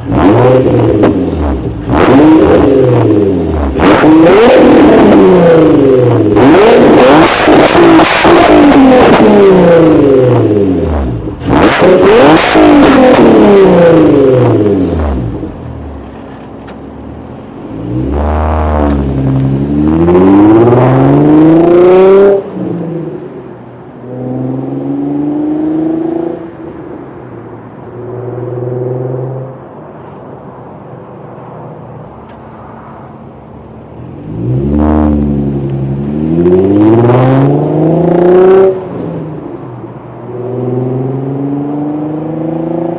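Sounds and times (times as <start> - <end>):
car exhaust revving: 0.0 - 16.2, 17.0 - 23.3, 34.0 - 38.9.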